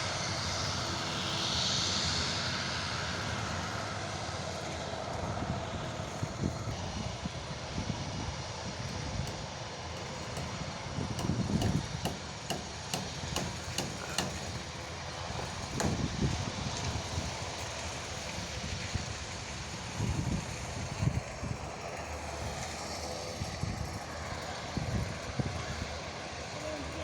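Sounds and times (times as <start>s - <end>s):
sharp knocks: 11.2s - 14.6s, 15.4s - 16.1s.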